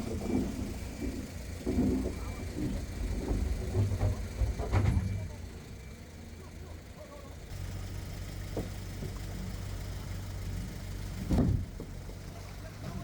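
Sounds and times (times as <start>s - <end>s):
low engine hum: 0.0s - 13.0s
loud thump: 11.2s - 11.9s.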